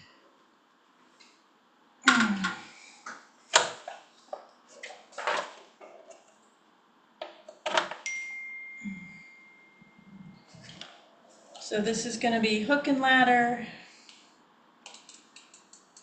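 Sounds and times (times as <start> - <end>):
thin high tone: 8.0 - 10.6.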